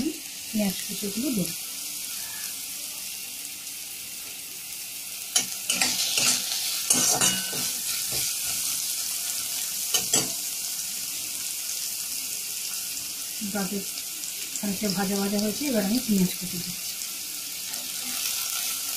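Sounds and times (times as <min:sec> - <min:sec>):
carrots sizzling in hot oil: 0:00.0 - 0:18.9
spoon scraping against pan: 0:05.3 - 0:10.5.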